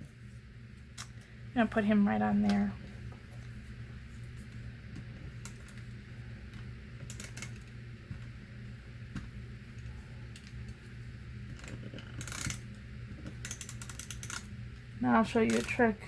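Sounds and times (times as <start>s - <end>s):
tape runner clicking and scraping: 15.4s - 16.0s.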